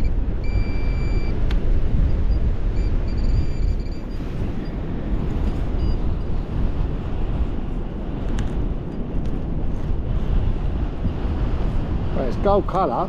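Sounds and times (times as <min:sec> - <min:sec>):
faint high beep: 0:00.0 - 0:01.4, 0:02.0 - 0:04.8, 0:05.8 - 0:06.1
wind buffeting microphone: 0:00.0 - 0:13.0
small click: 0:01.4 - 0:01.6.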